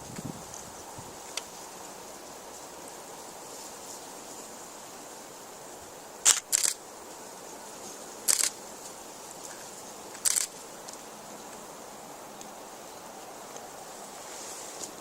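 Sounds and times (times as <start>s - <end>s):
background hiss: 0.0s - 15.0s
camera shutter clicks: 6.2s - 6.8s, 8.3s - 8.6s, 10.2s - 10.5s.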